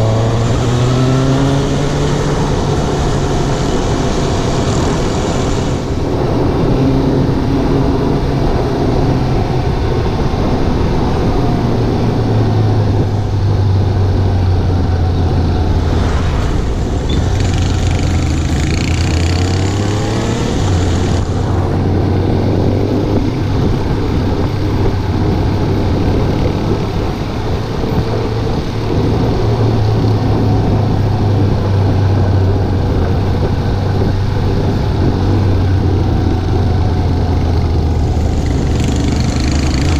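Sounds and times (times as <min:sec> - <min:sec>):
wind buffeting microphone: 0:00.0 - 0:39.9
hiss with rising tones: 0:15.3 - 0:18.5
motorcycle engine running: 0:16.7 - 0:39.9.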